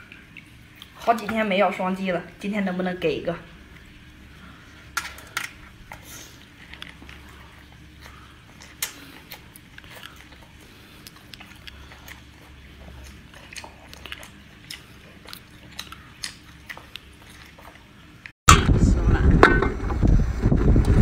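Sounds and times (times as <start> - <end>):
mouth clicks and crackles chewing: 0.0 - 1.3, 3.7 - 18.4.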